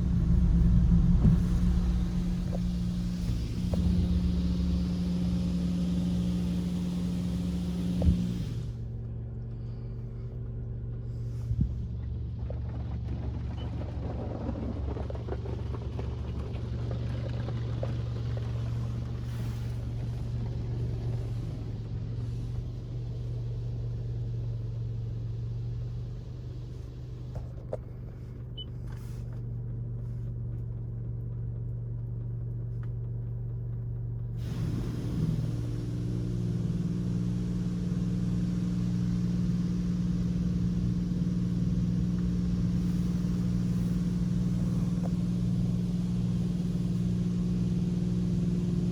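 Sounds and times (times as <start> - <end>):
muffled car wash hum and rumble: 0.0 - 48.9
hiss: 0.2 - 8.8, 19.2 - 20.2, 34.4 - 48.9.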